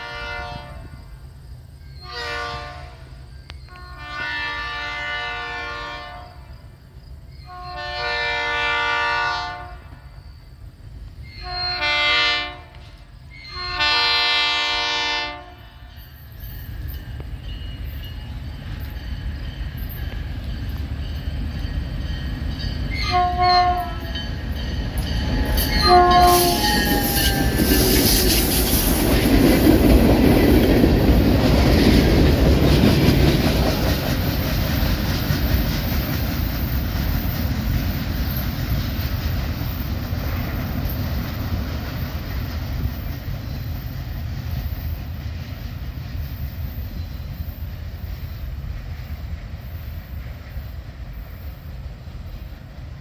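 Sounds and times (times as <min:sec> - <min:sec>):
locomotive horn blasts: 0:00.0 - 0:00.9, 0:02.0 - 0:03.1, 0:03.7 - 0:06.4, 0:07.5 - 0:09.9, 0:11.4 - 0:15.9, 0:22.9 - 0:24.2, 0:25.1 - 0:28.0
freight train rumbling past: 0:00.0 - 0:53.0
train wheel clatter: 0:15.8 - 0:53.0.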